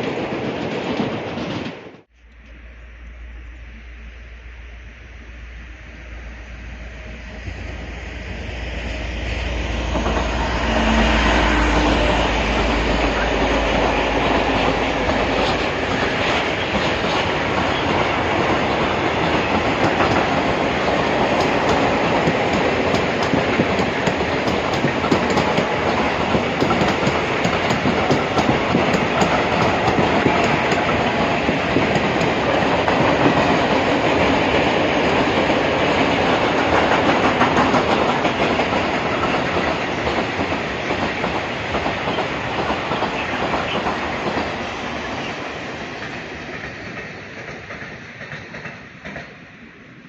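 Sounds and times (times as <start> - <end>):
locomotive engine low hum: 2.1 - 32.8
train wheels clattering over rail joints: 12.9 - 45.3, 45.9 - 49.5.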